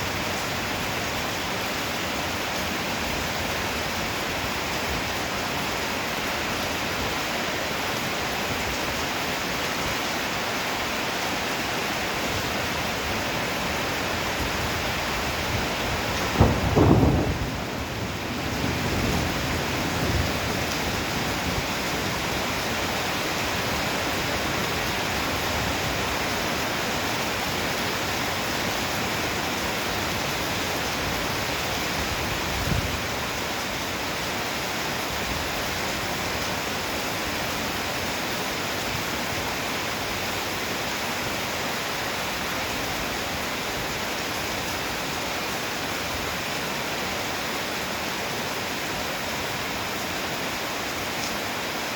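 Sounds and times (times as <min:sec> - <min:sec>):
heavy rain: 0:00.0 - 0:51.9
thunder rumble: 0:14.6 - 0:22.2
low thump: 0:16.3 - 0:17.7.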